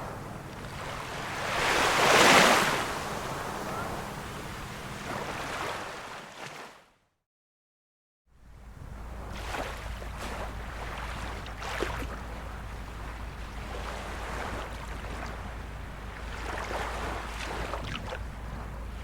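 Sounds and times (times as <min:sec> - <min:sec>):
small waves lapping ashore: 0:00.0 - 0:06.9, 0:08.4 - 0:19.0
steady low rumble: 0:08.4 - 0:19.0.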